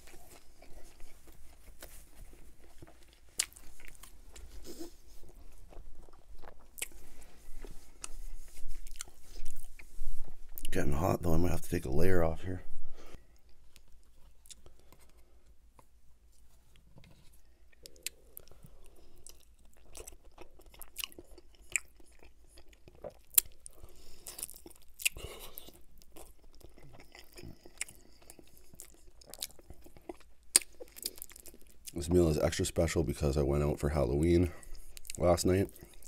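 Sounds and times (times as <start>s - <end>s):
sharp crunches and snaps: 0.0s - 7.0s, 19.2s - 32.0s
chewing and biting chicken wing: 0.1s - 7.2s, 17.8s - 32.0s.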